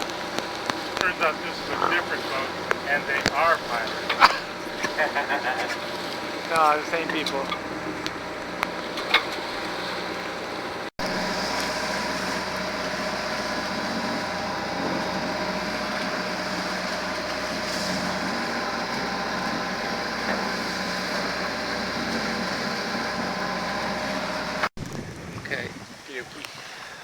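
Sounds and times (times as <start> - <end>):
boat engine droning: 0.0 - 24.8.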